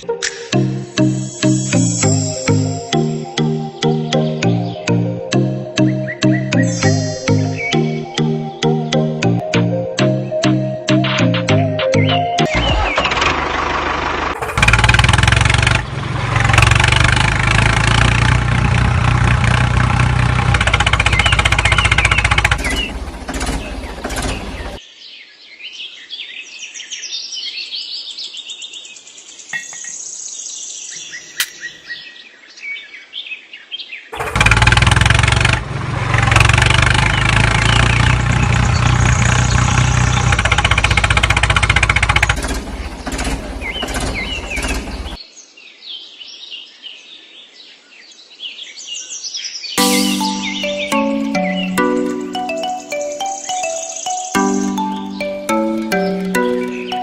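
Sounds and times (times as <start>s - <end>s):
birds chirping: 0.3s - 9.5s, 20.5s - 24.8s, 29.4s - 32.7s, 36.9s - 41.1s, 41.8s - 45.2s, 49.8s - 57.0s
loud steady motor running: 13.1s - 24.8s, 34.2s - 45.2s.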